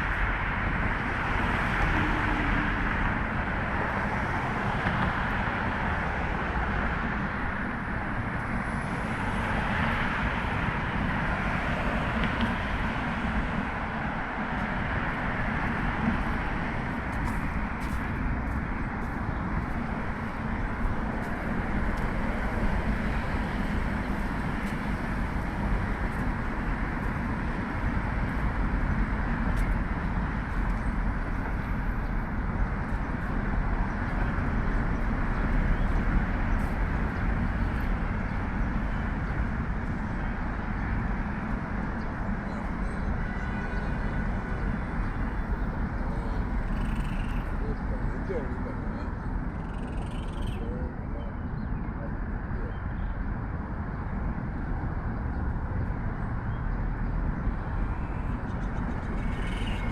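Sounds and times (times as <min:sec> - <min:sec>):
road traffic rumble and hiss: 0:00.0 - 0:59.9.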